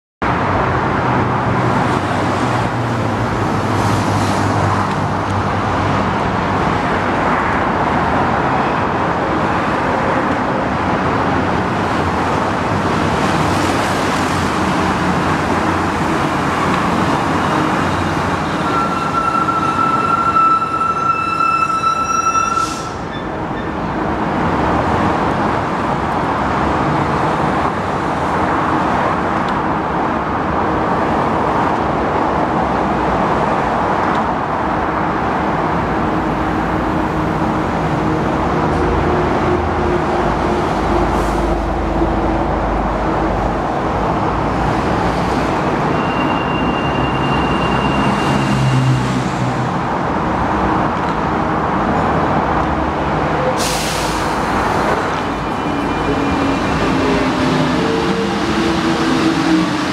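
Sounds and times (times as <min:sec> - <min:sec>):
traffic noise: 0:00.2 - 0:59.9
metro train hum: 0:00.3 - 0:59.9
thin high tone: 0:18.6 - 0:23.0.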